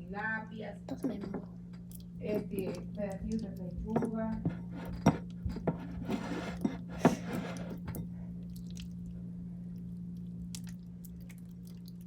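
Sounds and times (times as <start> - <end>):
steady low hum: 0.0 - 12.0
slime squelching: 7.1 - 12.0.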